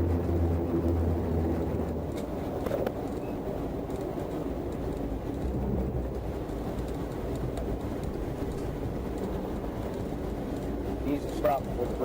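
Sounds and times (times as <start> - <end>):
vehicle driving at highway speed: 0.0 - 12.0.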